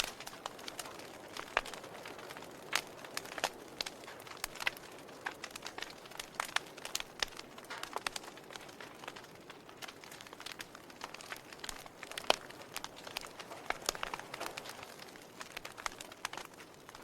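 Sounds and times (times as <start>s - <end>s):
log fire crackling: 0.0s - 17.0s.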